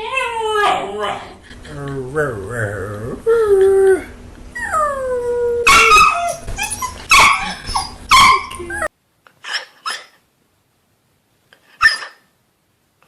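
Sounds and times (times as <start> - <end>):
dog howling and yowling: 0.0 - 1.4, 2.1 - 8.9.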